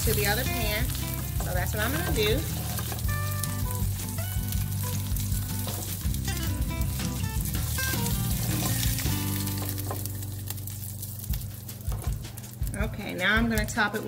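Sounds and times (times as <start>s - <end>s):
chicken sizzling in oil: 0.0s - 13.9s
wooden spatula scraping pan: 0.2s - 3.2s.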